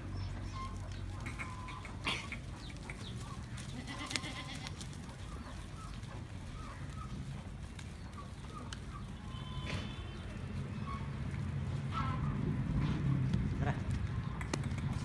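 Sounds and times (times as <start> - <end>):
goats bleating: 3.6 - 4.9.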